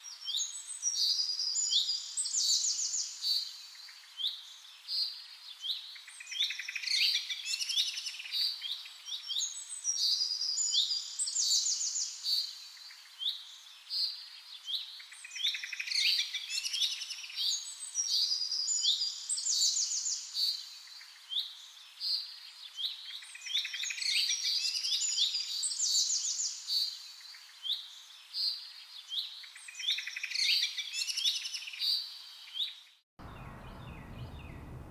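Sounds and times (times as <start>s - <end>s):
finch chirping song: 29.1s - 34.9s.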